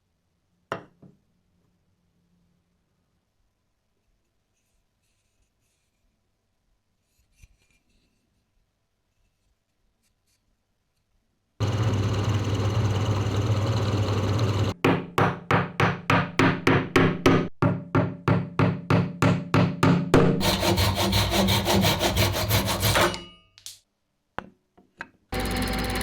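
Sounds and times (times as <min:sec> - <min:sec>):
tool rasping wood: 0:11.6 - 0:14.8, 0:20.4 - 0:23.3
back-and-forth sawing strokes: 0:20.4 - 0:23.3.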